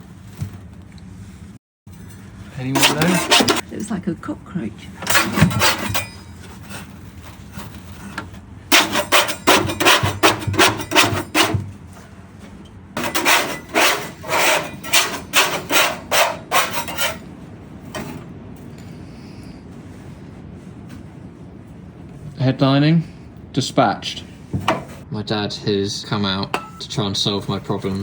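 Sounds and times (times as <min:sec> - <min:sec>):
rasping scraping strokes: 0:02.6 - 0:03.6, 0:05.0 - 0:11.8, 0:13.0 - 0:17.3.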